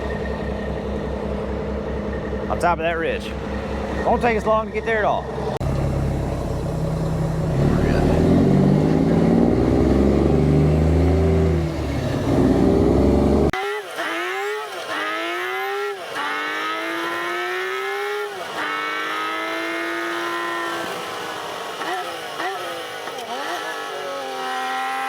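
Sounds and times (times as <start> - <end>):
low steady rumble: 0.0 - 8.7
vehicle engine accelerating: 0.0 - 25.0.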